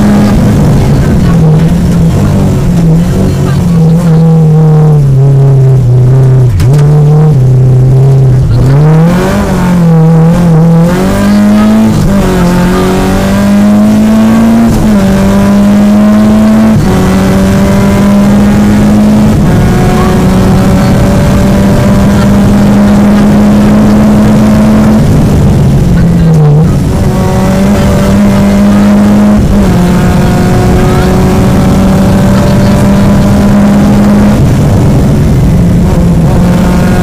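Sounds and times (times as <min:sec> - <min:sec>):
car engine revving in cabin: 0:00.0 - 0:37.0
gear upshifts: 0:00.0 - 0:37.0.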